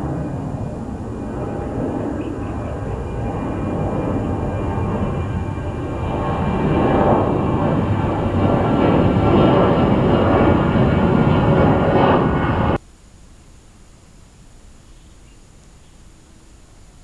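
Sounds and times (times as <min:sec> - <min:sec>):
jet engines rumbling: 0:00.0 - 0:12.8
faint background noise: 0:12.8 - 0:17.0.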